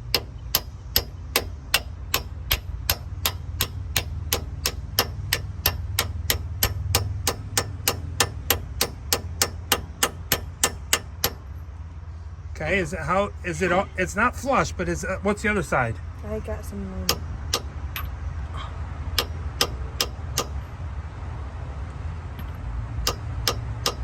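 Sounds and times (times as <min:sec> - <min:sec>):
steady low hum: 0:00.0 - 0:24.0
hammer tapping on metal: 0:00.1 - 0:11.5, 0:19.2 - 0:20.6, 0:23.0 - 0:24.0.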